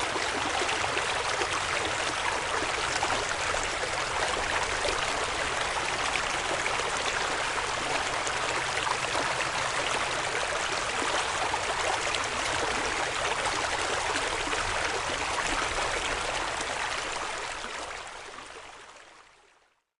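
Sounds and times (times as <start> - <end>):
creek water rushing over rocks: 0.0 - 18.4.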